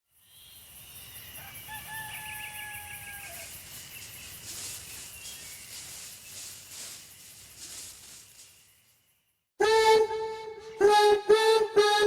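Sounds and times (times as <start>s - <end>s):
high insect chirping: 0.1s - 9.4s.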